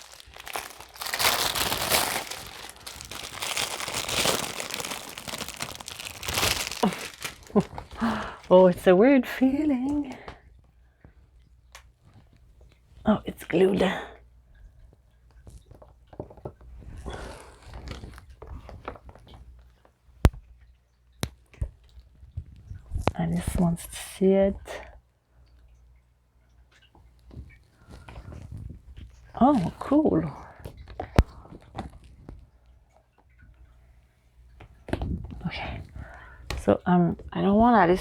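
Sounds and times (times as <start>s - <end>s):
silicone mat rustling: 0.0s - 8.0s
plastic packaging crinkling: 0.0s - 8.4s.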